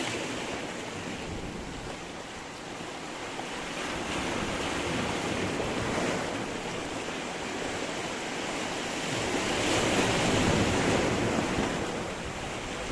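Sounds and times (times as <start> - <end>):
sea waves breaking on stones: 0.0 - 2.1
wind on microphone: 8.4 - 12.9.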